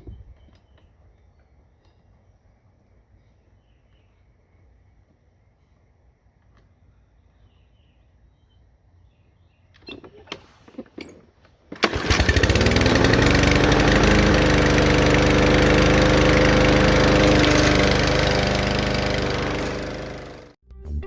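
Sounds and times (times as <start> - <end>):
small gasoline engine running: 11.7 - 20.6.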